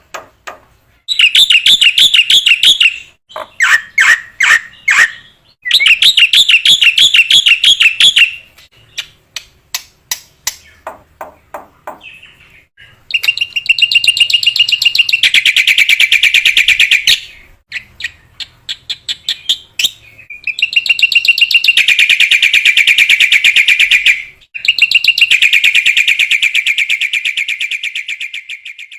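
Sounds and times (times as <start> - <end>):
bird sharp chips: 1.1 - 11.0, 11.8 - 23.1.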